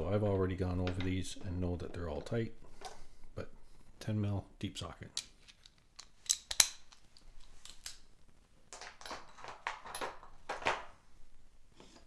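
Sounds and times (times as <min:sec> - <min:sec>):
metal tool clicks: 0:05.2 - 0:08.0.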